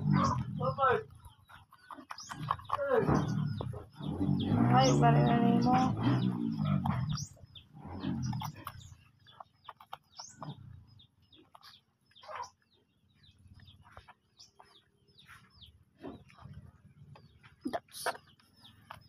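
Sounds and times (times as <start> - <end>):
voice: 2.7 - 3.3, 4.5 - 6.2, 17.7 - 18.2.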